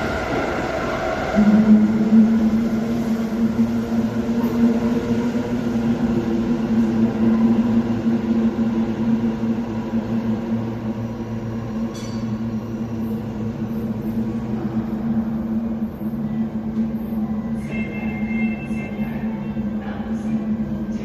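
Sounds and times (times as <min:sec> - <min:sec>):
subway train hum: 0:00.0 - 0:21.0.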